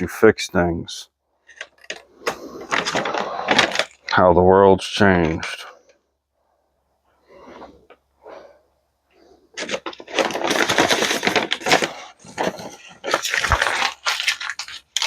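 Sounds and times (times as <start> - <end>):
paper rustling and crackling: 1.5 - 4.1, 9.5 - 15.0.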